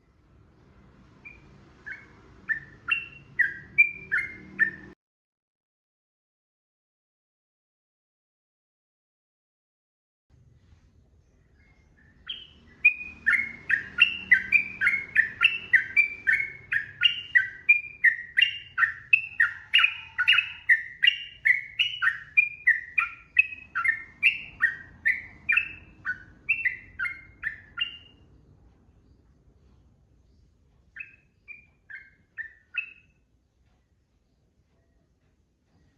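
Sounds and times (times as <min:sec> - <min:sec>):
bulbul singing slurred notes: 0:01.2 - 0:05.0, 0:11.5 - 0:28.3.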